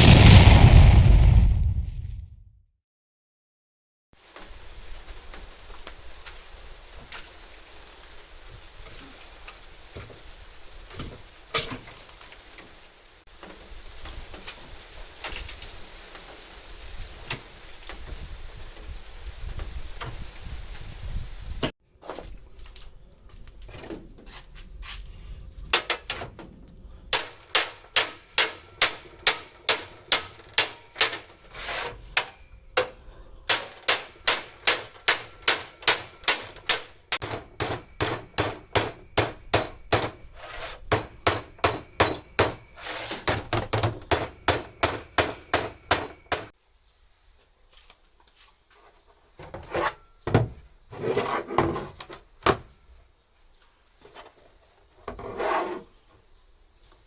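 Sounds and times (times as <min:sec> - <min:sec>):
irregular scraping: 0:54.0 - 0:56.0.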